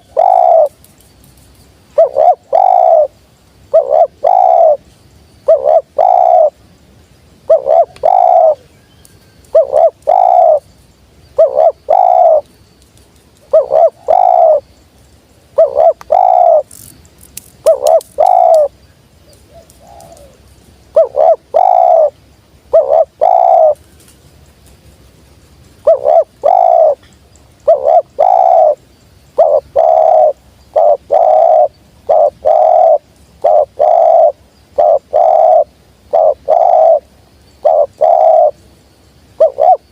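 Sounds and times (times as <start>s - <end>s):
dove cooing: 0.0s - 0.8s, 1.9s - 4.8s, 5.4s - 6.6s, 7.4s - 8.7s, 9.5s - 10.6s, 11.3s - 12.5s, 13.4s - 14.7s, 15.5s - 16.9s, 17.6s - 18.7s, 19.4s - 23.8s, 25.8s - 27.0s, 27.6s - 38.6s, 39.3s - 39.9s.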